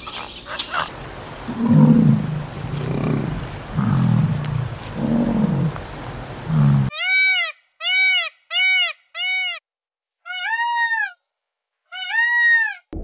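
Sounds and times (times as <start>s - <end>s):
peafowl calling: 0.0s - 9.6s, 10.3s - 11.2s, 11.9s - 12.9s
low bison grunt: 1.4s - 6.9s.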